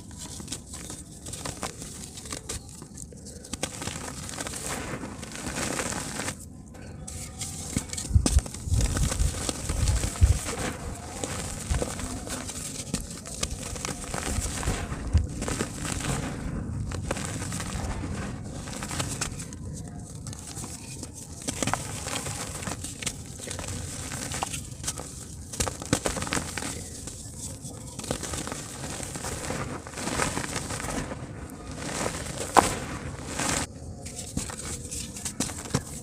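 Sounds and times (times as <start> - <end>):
dirt crumbling in water: 28.0 - 33.7.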